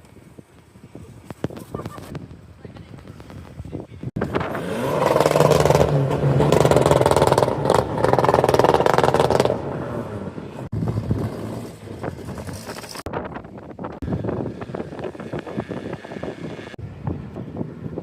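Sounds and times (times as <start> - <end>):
car engine and exhaust running: 4.2 - 13.1.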